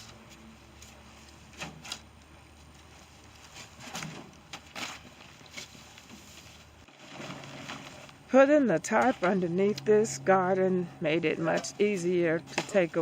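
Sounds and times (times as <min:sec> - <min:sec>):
shovels scraping soil: 0:04.8 - 0:08.2.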